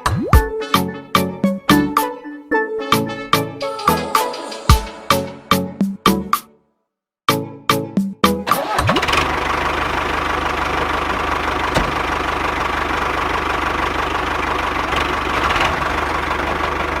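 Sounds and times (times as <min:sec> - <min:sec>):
music beats: 0:00.0 - 0:06.5
small engine starting and idling: 0:08.5 - 0:17.0.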